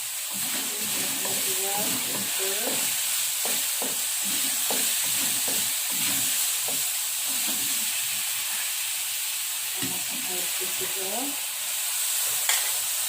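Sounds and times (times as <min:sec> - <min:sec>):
paste sizzling in a pan: 0:00.0 - 0:13.0
spatula knocking against pan: 0:01.2 - 0:07.6.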